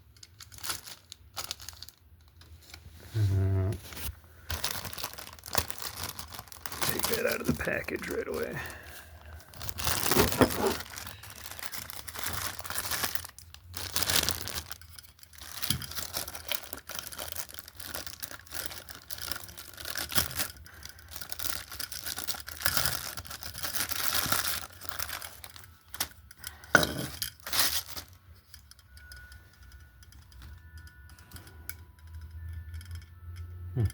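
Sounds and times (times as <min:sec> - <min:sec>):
packaging torn and crinkled: 0:00.2 - 0:02.8, 0:03.9 - 0:26.2, 0:27.4 - 0:28.2.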